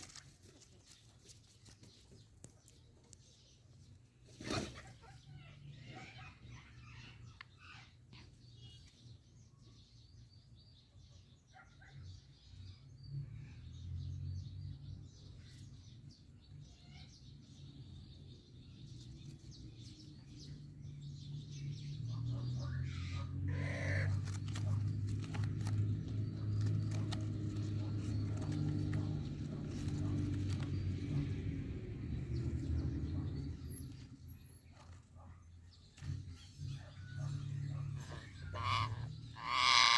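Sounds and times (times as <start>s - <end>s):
parrot long call: 38.1s - 39.9s.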